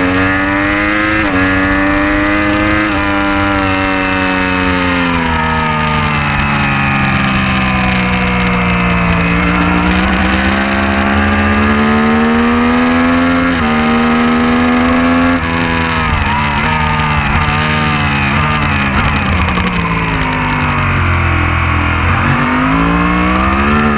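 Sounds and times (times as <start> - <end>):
racing motorcycle engine revving: 0.0 - 23.9
low rumble: 4.8 - 13.3, 15.4 - 23.9.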